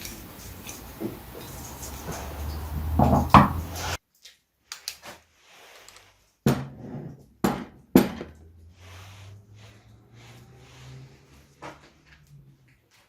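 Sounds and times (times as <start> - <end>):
short knocks and clatters: 0.4 - 4.0.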